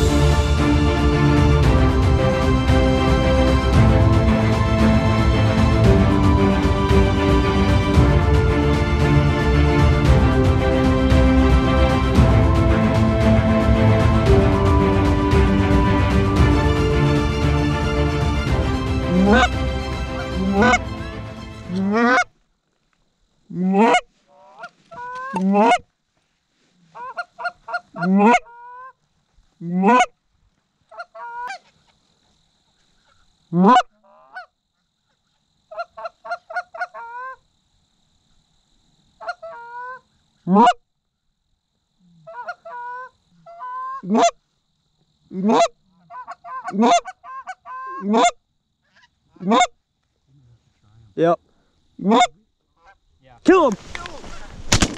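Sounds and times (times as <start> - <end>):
goose honks and clucks: 19.1 - 19.6, 20.4 - 20.9, 21.7 - 22.3, 23.6 - 25.8, 26.9 - 29.0, 29.6 - 30.1, 30.9 - 31.7, 33.5 - 34.5, 35.2 - 37.4, 39.2 - 40.8, 42.2 - 44.4, 45.3 - 49.8, 52.0 - 53.0.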